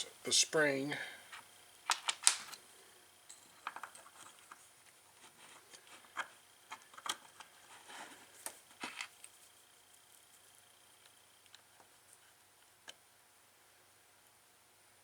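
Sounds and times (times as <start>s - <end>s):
small parts clicking and tapping: 1.3s - 7.7s, 8.4s - 9.4s, 11.0s - 12.0s.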